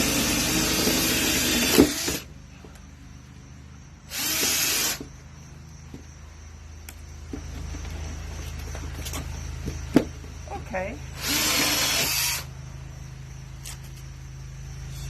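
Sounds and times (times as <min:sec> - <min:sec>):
power drill with hole saw in wood: 0:00.0 - 0:02.3, 0:04.1 - 0:05.1, 0:11.2 - 0:12.5.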